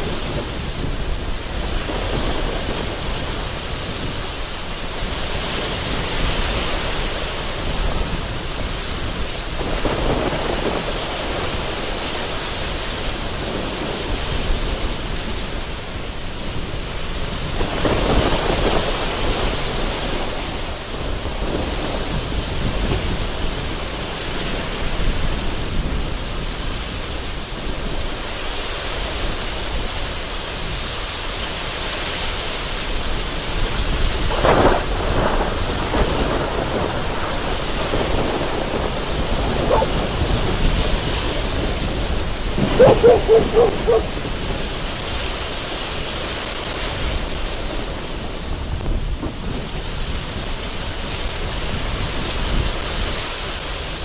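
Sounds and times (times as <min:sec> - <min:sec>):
gusting wind: 0:00.0 - 0:54.0
heavy rain: 0:00.0 - 0:54.0
thunder rumbling: 0:34.0 - 0:45.0.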